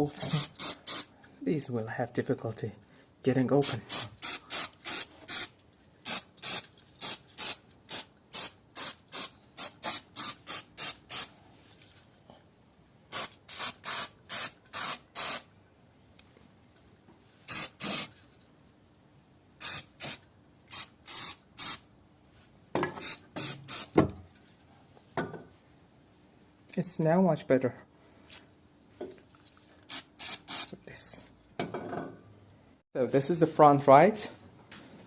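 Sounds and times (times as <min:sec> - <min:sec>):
spray can short bursts: 0:00.2 - 0:01.1, 0:03.6 - 0:11.3, 0:13.1 - 0:15.5, 0:17.5 - 0:18.1, 0:19.6 - 0:21.8, 0:23.0 - 0:23.9, 0:29.9 - 0:30.7.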